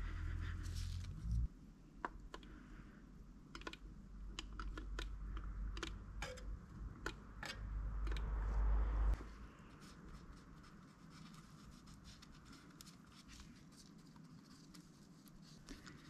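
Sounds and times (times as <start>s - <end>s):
metal parts clicking and tapping: 3.5s - 8.3s.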